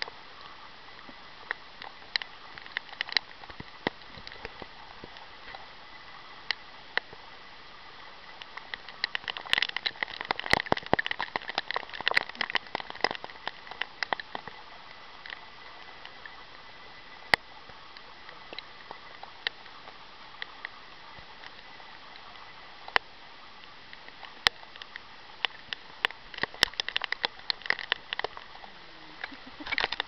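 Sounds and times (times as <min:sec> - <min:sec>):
raindrop clicks near microphone: 0:00.0 - 0:07.3, 0:08.2 - 0:30.0
heavy rain hissing: 0:25.0 - 0:30.0.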